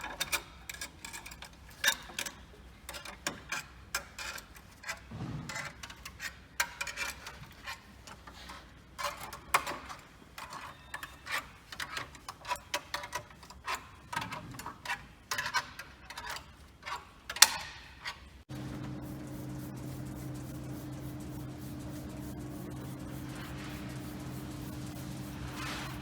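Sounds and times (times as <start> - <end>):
steady machine hum: 18.5 - 26.0.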